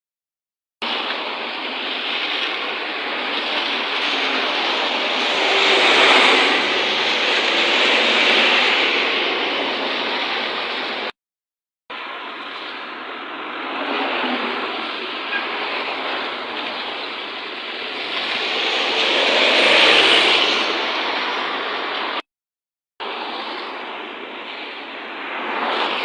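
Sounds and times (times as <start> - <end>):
rain: 0.8 - 11.1, 12.0 - 22.2
bus tyres hissing on wet road: 0.9 - 11.1, 12.0 - 22.2, 23.2 - 26.0.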